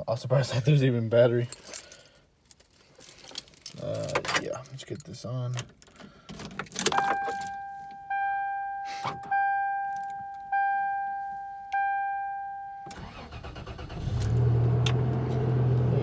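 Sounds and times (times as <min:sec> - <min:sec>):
dashboard warning chime: 0:06.9 - 0:13.4
starter cranking engine: 0:12.9 - 0:15.0.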